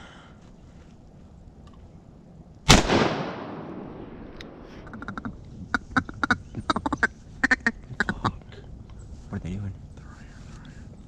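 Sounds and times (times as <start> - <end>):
shotgun shot echoing: 2.7 - 5.0
ducks quacking: 4.7 - 8.5.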